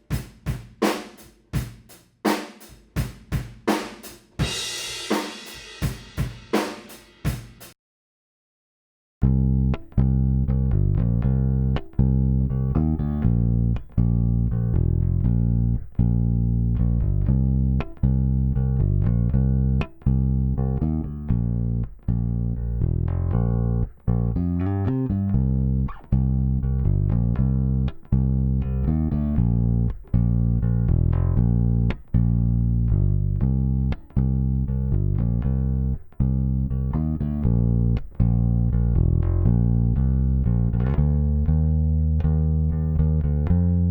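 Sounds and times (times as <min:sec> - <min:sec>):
electric bass guitar plucking: 0:09.2 - 0:43.9.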